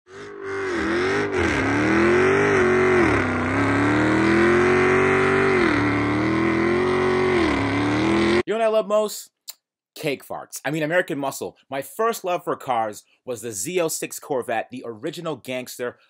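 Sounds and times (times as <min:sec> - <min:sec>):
car engine revving high: 0:00.1 - 0:08.4.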